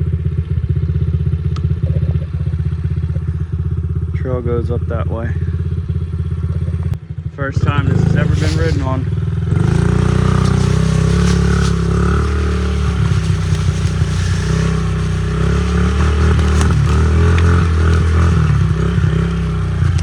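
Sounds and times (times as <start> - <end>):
small motorbike engine running: 5.3 - 20.0.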